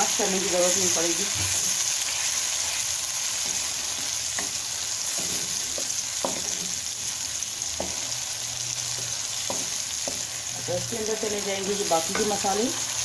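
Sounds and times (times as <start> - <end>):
sauce sizzling in a pan: 0.0 - 13.0
spatula scraping a pan: 1.2 - 7.2.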